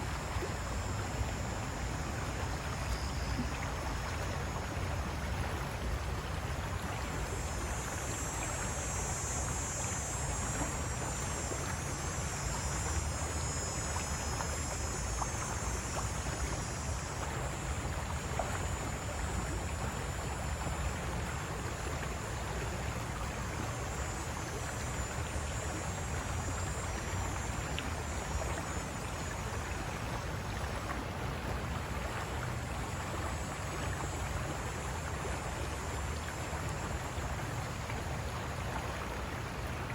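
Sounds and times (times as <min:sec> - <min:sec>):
high-pitched insect chirring: 0:07.1 - 0:30.6.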